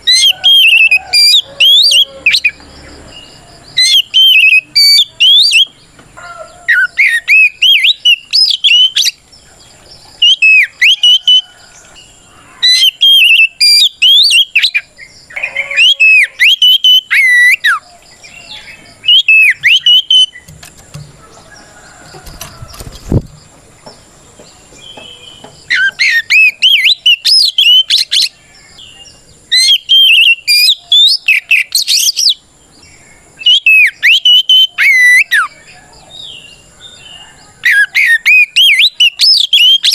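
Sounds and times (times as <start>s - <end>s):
bird singing sweeping whistles: 0.0s - 2.6s, 3.8s - 5.8s, 6.7s - 9.2s, 10.2s - 11.4s, 12.7s - 20.5s, 25.0s - 28.4s, 29.5s - 32.4s, 33.4s - 35.6s, 37.7s - 39.9s.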